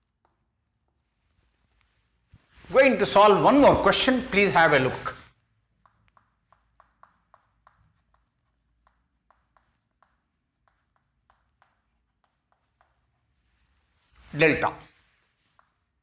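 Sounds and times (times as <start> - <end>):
writing implement ticking on surface: 5.7 - 13.5.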